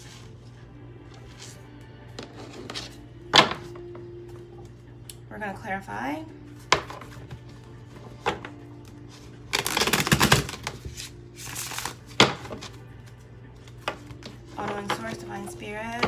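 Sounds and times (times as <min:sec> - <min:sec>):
soft background music: 0:00.0 - 0:16.0
cards being shuffled: 0:06.5 - 0:15.5
cards tapping and slapping: 0:09.6 - 0:12.8.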